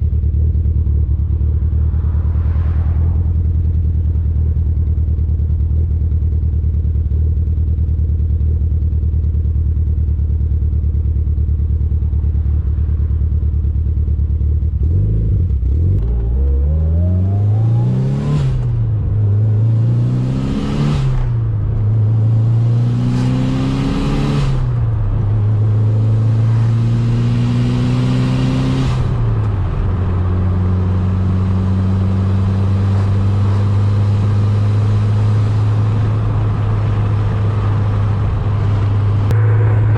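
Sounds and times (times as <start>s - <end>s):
car engine accelerating and upshifting: 1.1s - 4.6s, 14.7s - 39.9s.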